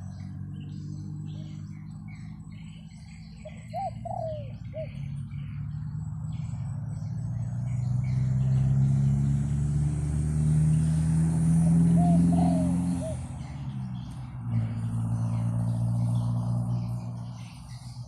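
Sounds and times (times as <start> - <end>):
birds chirping: 0.0 - 18.0
dove cooing: 3.2 - 5.2, 11.6 - 13.5.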